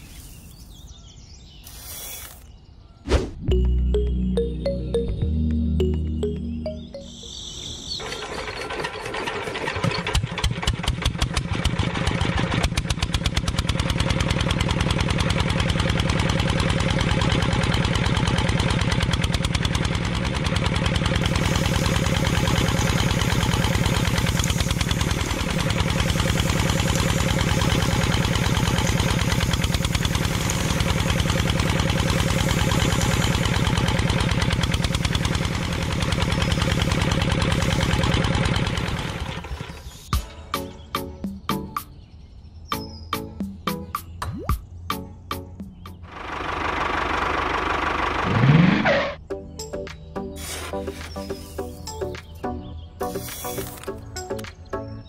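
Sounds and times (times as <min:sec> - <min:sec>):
diesel engine chugging: 0:03.5 - 0:41.5, 0:45.0 - 0:49.3.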